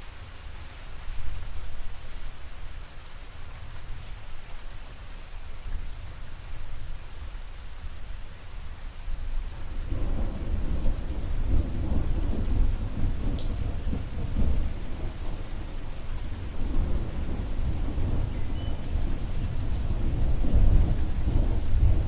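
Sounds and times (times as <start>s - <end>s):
steady rain: 0.0s - 22.0s
thunder rumbling: 9.5s - 22.0s.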